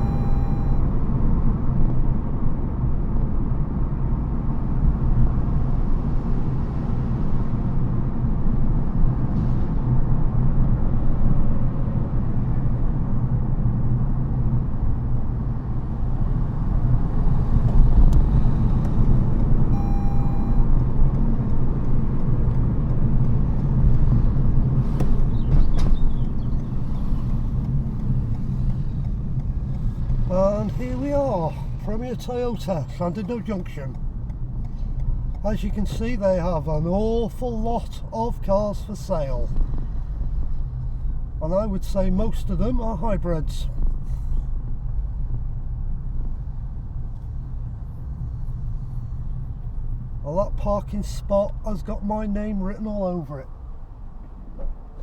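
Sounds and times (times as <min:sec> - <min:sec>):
short tone: 0:00.0 - 0:01.0, 0:19.7 - 0:20.7
road and tyre noise in car: 0:00.0 - 0:55.0.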